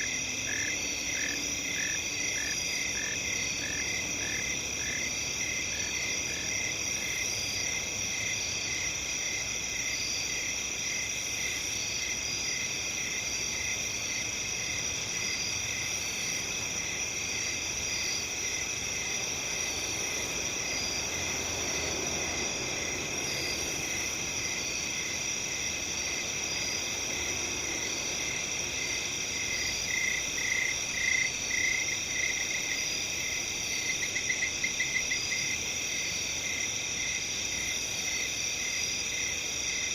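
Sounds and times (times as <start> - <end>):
crickets chirping chorus: 0.0 - 39.9.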